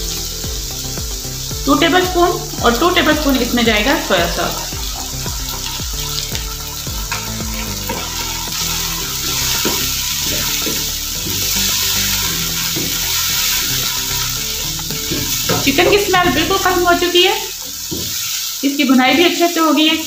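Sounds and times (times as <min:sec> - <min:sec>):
food sizzling in a wok: 0:00.0 - 0:20.0
sauce being poured: 0:04.5 - 0:16.0
spoon scraping and stirring: 0:05.6 - 0:15.6.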